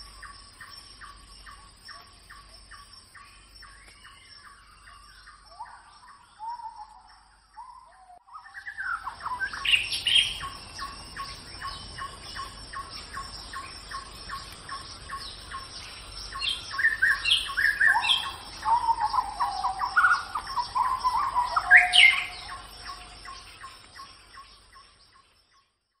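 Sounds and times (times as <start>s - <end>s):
birds chirping and squawking: 7.6s - 23.8s.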